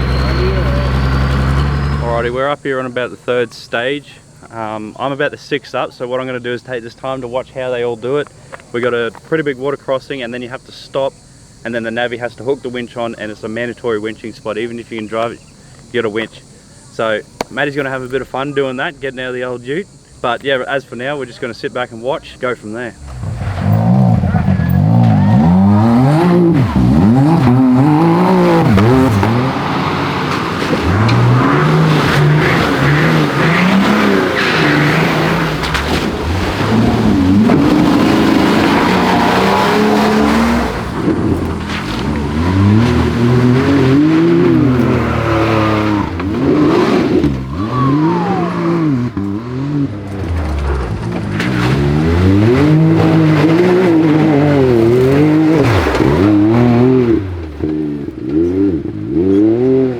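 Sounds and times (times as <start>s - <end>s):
engine revving hard: 0.0s - 2.5s, 22.9s - 59.9s.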